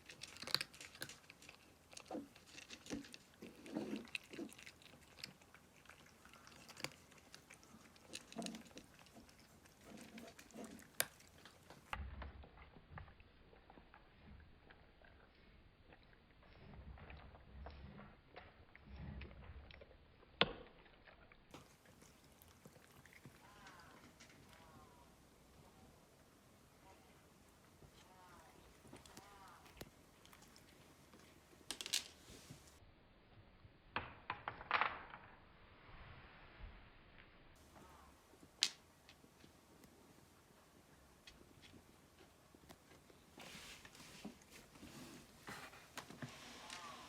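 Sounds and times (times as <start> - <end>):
cat crunching dry food: 0.0 - 15.4, 16.0 - 25.0, 27.6 - 32.8
faint background hiss: 35.6 - 47.0.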